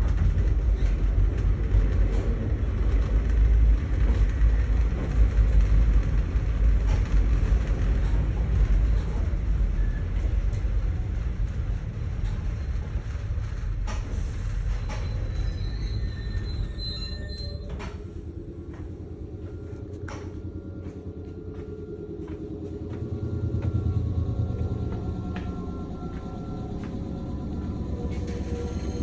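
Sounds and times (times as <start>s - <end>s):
train wheels rumbling on rail: 0.0s - 29.0s
wheels squealing: 14.3s - 18.0s.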